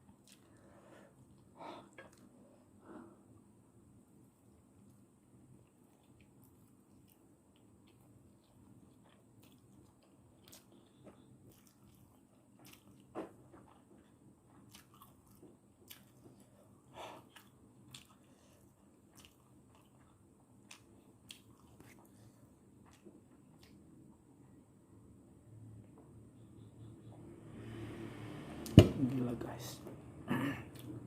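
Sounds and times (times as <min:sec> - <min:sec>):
person chewing noodles: 0:00.0 - 0:02.4, 0:05.6 - 0:24.3.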